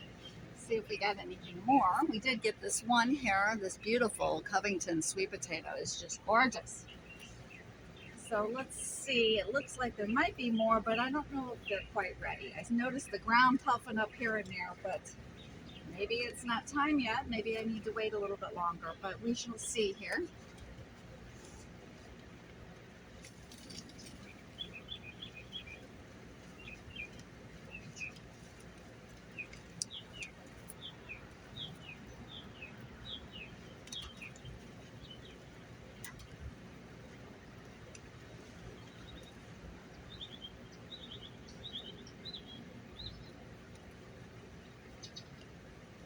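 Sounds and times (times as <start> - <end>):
faint outdoor hiss: 0.0 - 46.0
bird chirping: 23.5 - 36.4, 37.5 - 43.6.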